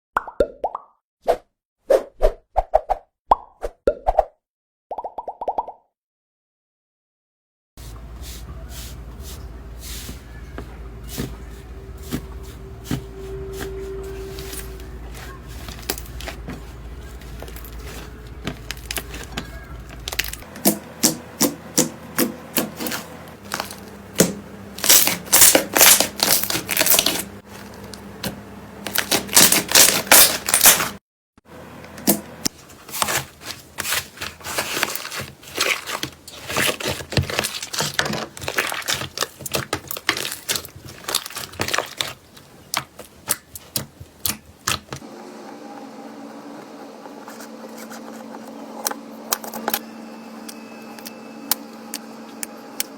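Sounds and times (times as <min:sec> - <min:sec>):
low hum: 0:07.9 - 0:22.2.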